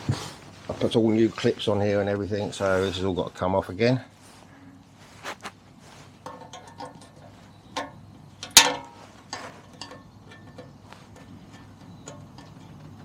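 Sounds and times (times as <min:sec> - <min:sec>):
small metallic clicks and taps: 0:06.2 - 0:13.0.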